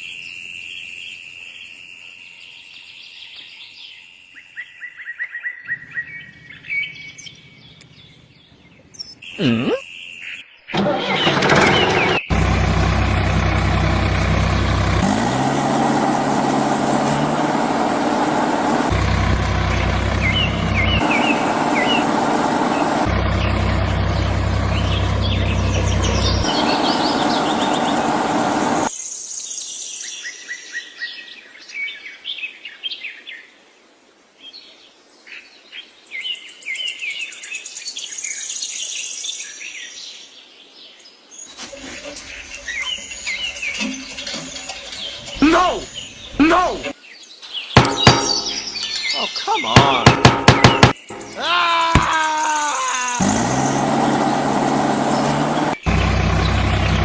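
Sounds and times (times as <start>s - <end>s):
birds chirping: 5.6s - 15.2s, 17.1s - 28.9s, 41.4s - 57.0s
engine running: 10.8s - 28.9s, 41.6s - 46.9s, 47.8s - 49.1s, 49.7s - 52.2s, 53.1s - 57.0s.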